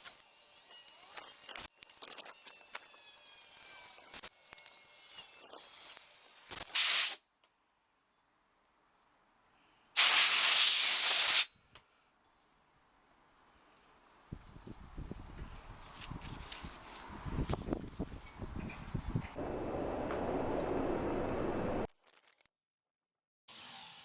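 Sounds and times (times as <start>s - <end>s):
loud hissing spray bursts: 6.7s - 7.2s, 10.0s - 11.5s.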